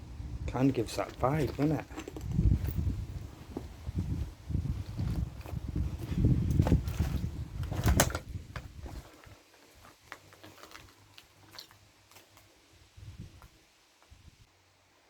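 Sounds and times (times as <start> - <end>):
low rumble on microphone: 0.0 - 9.1
footsteps: 0.9 - 8.0.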